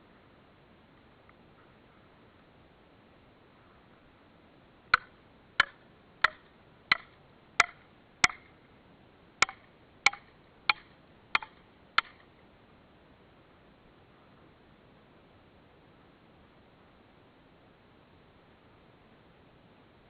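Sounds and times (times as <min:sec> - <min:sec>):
tool striking wood: 0:05.0 - 0:08.5, 0:09.4 - 0:12.2.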